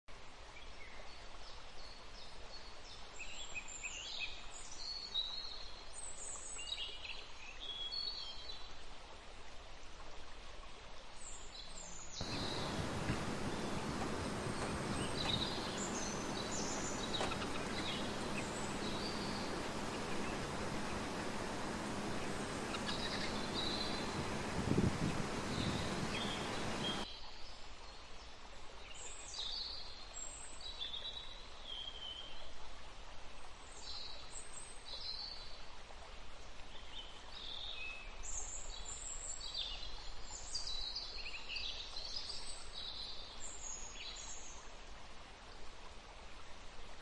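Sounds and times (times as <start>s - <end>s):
loud steady background noise: 12.2s - 27.0s
small birds chirping: 12.2s - 27.0s.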